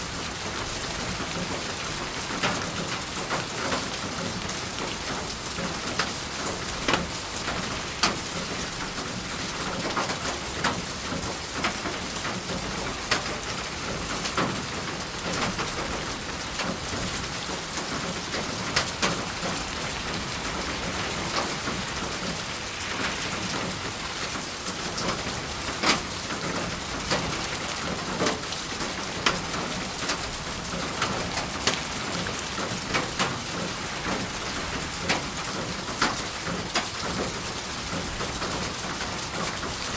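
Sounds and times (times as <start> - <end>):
steady rain hiss: 0.0 - 39.9
raindrops tapping nearby: 0.4 - 39.9.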